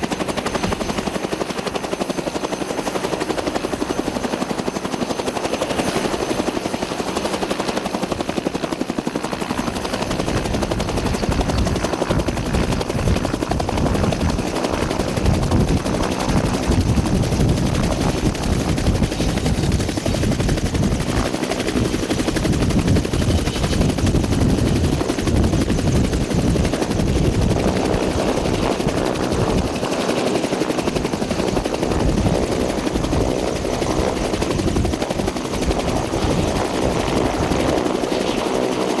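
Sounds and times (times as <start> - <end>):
loud aircraft noise: 0.0 - 39.0.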